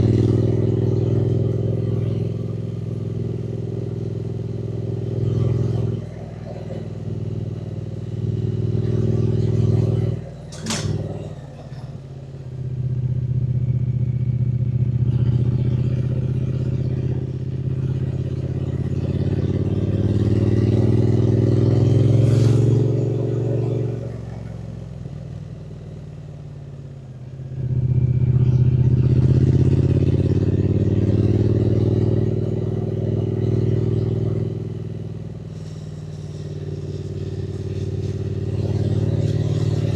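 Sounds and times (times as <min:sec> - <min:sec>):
motorcycle engine accelerating: 0:00.0 - 0:39.9
sharp click: 0:10.5 - 0:11.1.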